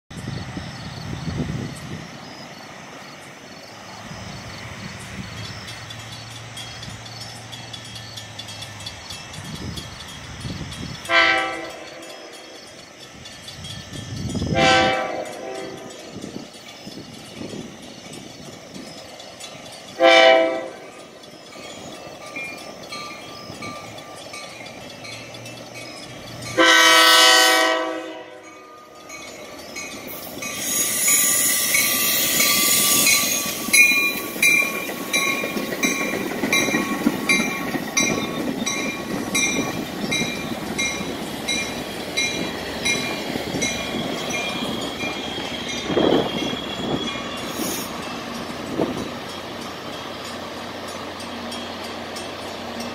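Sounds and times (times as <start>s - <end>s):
train passing with wheel noise: 0.1s - 52.9s
crossing bell dinging: 4.2s - 52.9s
train horn blast: 11.1s - 12.3s, 14.5s - 16.0s, 20.0s - 20.8s, 26.6s - 28.7s
thin brake squeal: 30.1s - 34.8s, 43.8s - 48.3s.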